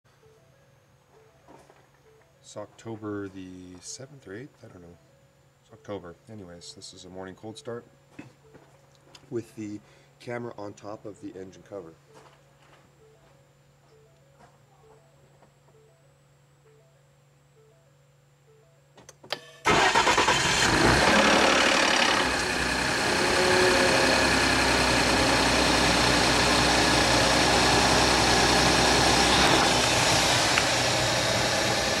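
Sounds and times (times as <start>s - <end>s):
engine starting and idling: 19.6s - 32.0s
engine rattling and grinding: 19.7s - 32.0s.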